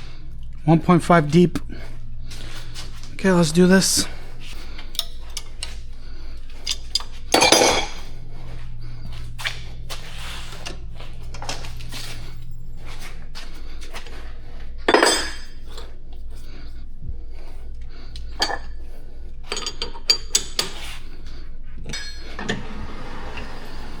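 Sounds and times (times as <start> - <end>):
metal lathe humming: 0.0 - 16.5, 17.7 - 24.0
lathe scraping bursts: 22.0 - 24.0.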